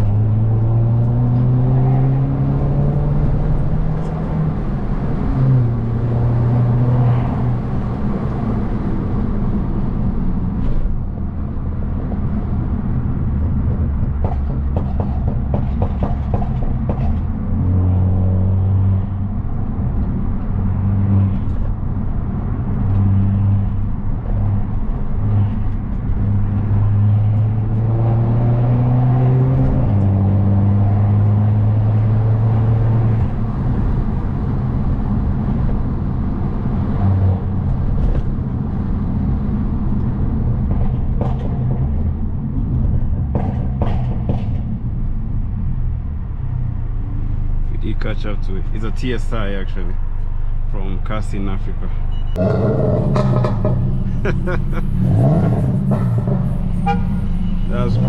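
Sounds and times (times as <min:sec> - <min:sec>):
car engine droning: 0:00.0 - 0:58.0.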